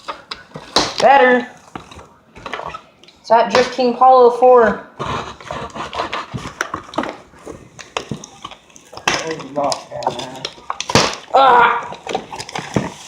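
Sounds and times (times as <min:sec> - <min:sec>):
packaging rustling and clicks: 0:06.2 - 0:13.0.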